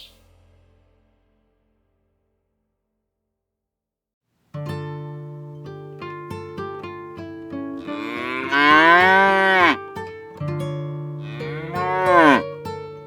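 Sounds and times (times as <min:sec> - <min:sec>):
acoustic guitar music: 0:04.5 - 0:13.0
loud drawn-out animal call: 0:07.8 - 0:09.8, 0:11.2 - 0:12.5.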